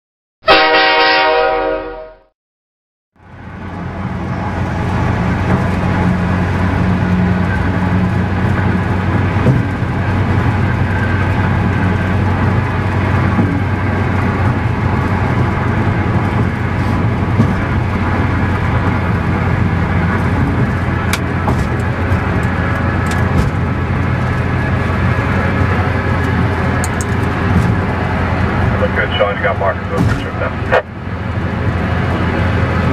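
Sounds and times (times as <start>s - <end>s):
vehicle engine droning: 3.2s - 32.9s.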